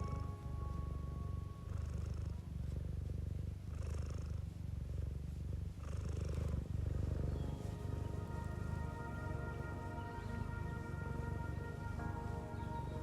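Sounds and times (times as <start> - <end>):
cat purring: 0.0 - 8.9.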